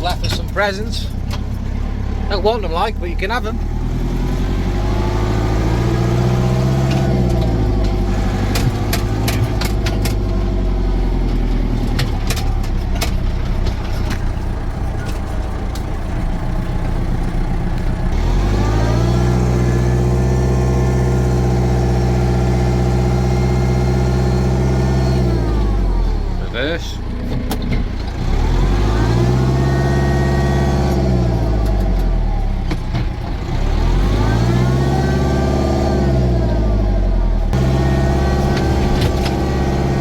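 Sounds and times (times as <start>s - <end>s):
tractor diesel engine revving: 0.0s - 40.0s
sharp clicks and rattles: 6.7s - 10.6s, 11.2s - 18.2s, 37.6s - 40.0s.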